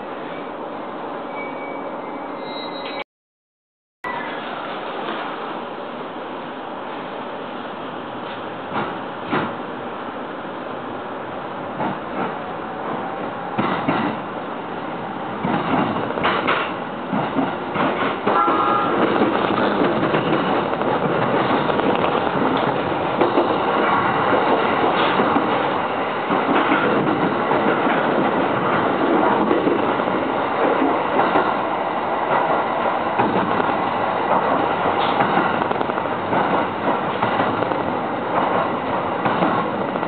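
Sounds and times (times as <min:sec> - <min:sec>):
train running noise: 0:04.0 - 0:40.0
wheels clacking over rail joints: 0:15.4 - 0:40.0.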